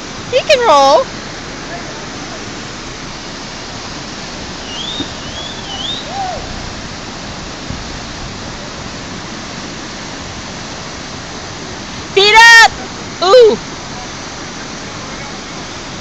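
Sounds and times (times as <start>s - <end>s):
rushing river rapids: 0.0s - 16.0s
faint high wavering call: 4.6s - 6.6s.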